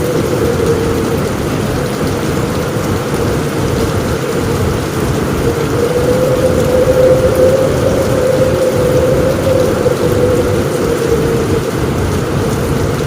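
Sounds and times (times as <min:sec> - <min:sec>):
heavy rain on a roof: 0:00.0 - 0:13.0
low thunder: 0:00.0 - 0:13.0.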